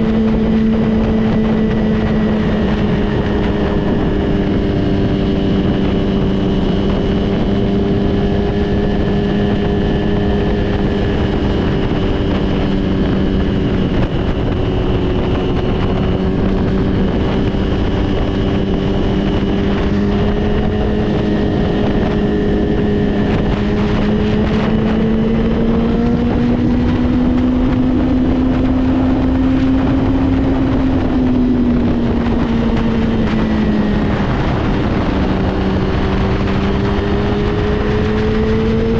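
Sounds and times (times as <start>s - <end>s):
motorcycle engine running: 0.0s - 38.9s
wind rushing over microphone: 0.0s - 38.9s.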